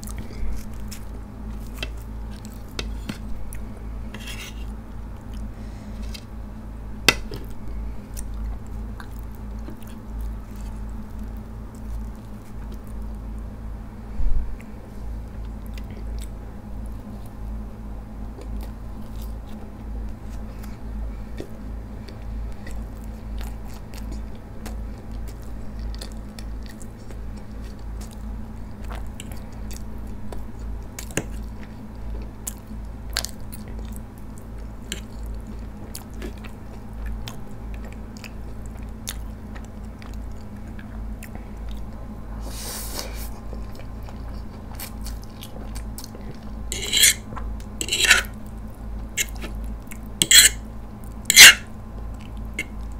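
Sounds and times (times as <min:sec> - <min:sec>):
steady low hum: 0:00.0 - 0:52.9
bread biting and chewing: 0:43.2 - 0:50.6.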